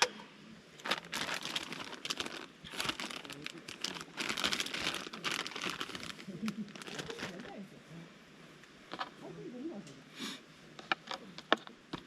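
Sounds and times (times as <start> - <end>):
crinkling and rustling: 0.8 - 7.6.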